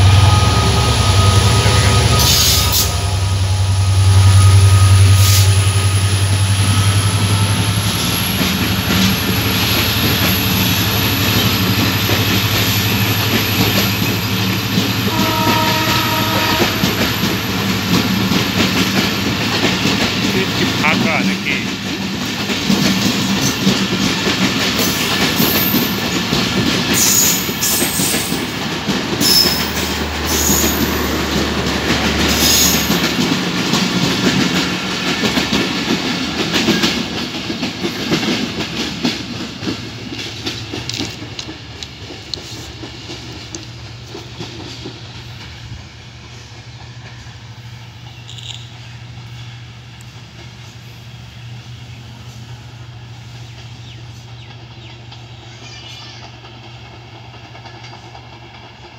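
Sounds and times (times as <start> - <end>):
train wheels clattering over rail joints: 4.9 - 48.9, 56.1 - 58.9
high-pitched wheel squeaks: 29.2 - 31.1.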